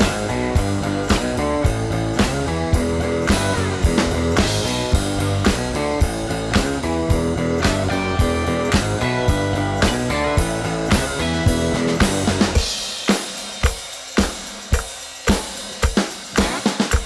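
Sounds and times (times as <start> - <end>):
rock music with guitar and drums: 0.0 - 13.0.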